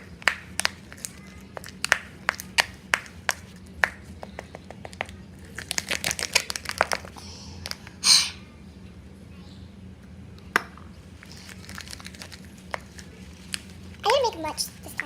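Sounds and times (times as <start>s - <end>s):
slime clicking and tapping: 0.0s - 7.1s.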